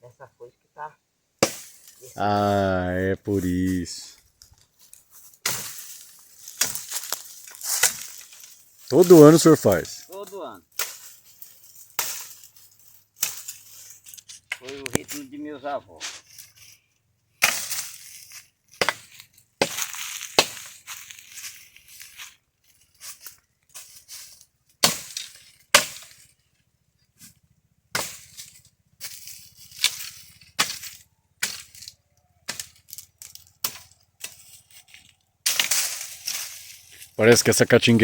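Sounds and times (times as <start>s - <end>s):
axe chopping wood: 1.4s - 1.9s, 6.6s - 7.0s, 17.4s - 18.0s, 18.7s - 20.8s, 24.8s - 26.2s, 27.9s - 28.3s, 29.8s - 31.8s, 32.4s - 32.8s.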